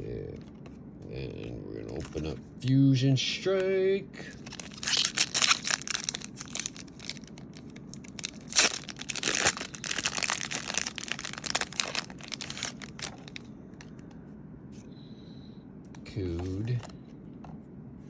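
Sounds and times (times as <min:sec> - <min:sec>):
foil wrapper crinkling and tearing: 0:04.3 - 0:13.5.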